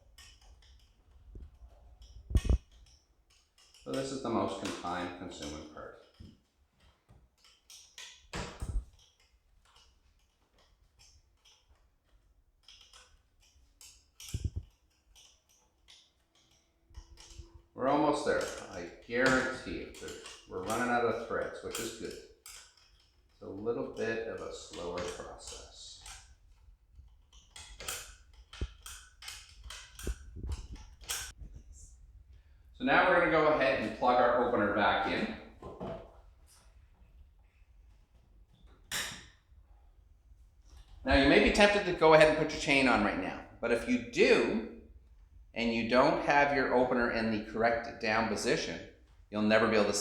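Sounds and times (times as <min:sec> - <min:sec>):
wrench clicking on metal: 0:00.0 - 0:31.4.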